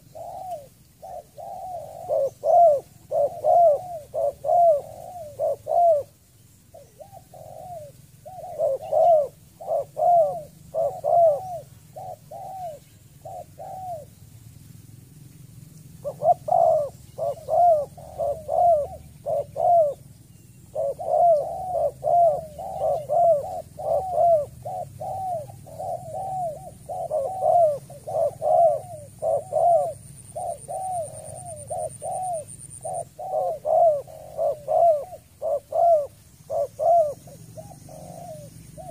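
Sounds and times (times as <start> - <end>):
dove cooing: 0.0 - 14.2, 15.5 - 38.9.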